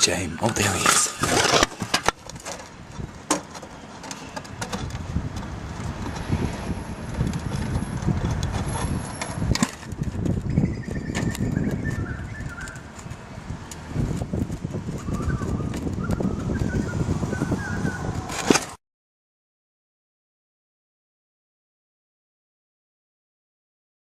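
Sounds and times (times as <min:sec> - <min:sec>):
bird calling: 0:00.0 - 0:02.0, 0:10.5 - 0:12.9, 0:15.0 - 0:18.3.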